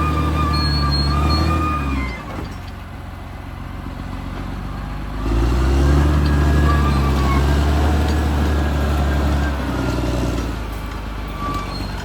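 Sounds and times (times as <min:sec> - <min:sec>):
thin high squeal: 0:00.0 - 0:02.2, 0:06.3 - 0:07.6, 0:11.2 - 0:12.0
bulldozer diesel engine: 0:00.0 - 0:12.0.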